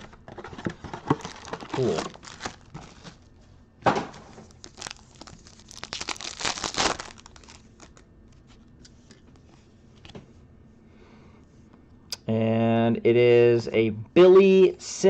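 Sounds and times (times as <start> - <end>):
cards being handled: 0.0 - 3.2, 4.1 - 10.2
wrapper crinkling: 0.5 - 3.4, 4.1 - 8.6
foil pack tearing: 1.1 - 3.2, 4.2 - 8.0.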